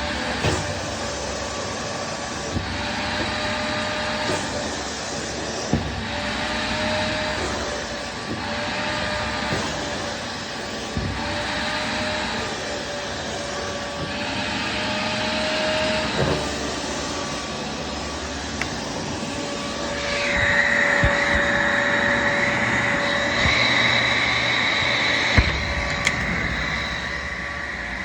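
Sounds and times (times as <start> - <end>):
vacuum cleaner running: 0.0 - 28.0
high-pitched whine: 18.6 - 28.0.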